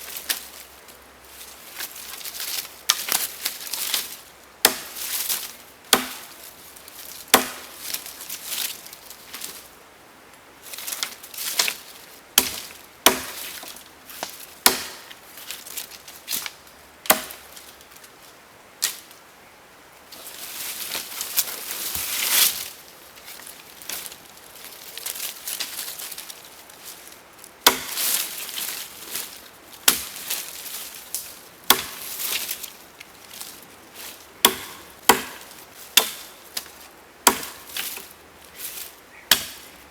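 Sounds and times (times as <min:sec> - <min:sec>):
wood being chopped: 0:03.9 - 0:06.4, 0:07.3 - 0:08.0, 0:12.4 - 0:15.2, 0:16.4 - 0:17.6, 0:27.6 - 0:28.6, 0:29.8 - 0:30.4, 0:31.1 - 0:32.6, 0:34.4 - 0:38.1, 0:39.3 - 0:39.7.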